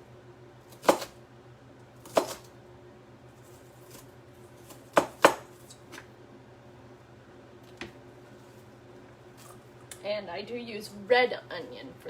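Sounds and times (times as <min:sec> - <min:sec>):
knife chopping on cutting board: 0:00.7 - 0:01.2, 0:02.0 - 0:02.5, 0:04.6 - 0:05.6.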